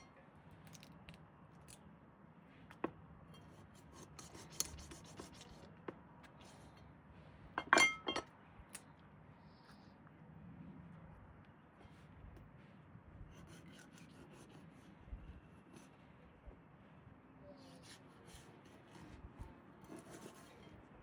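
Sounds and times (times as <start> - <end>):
close scratching and rubbing: 3.5 - 5.7, 17.8 - 20.8.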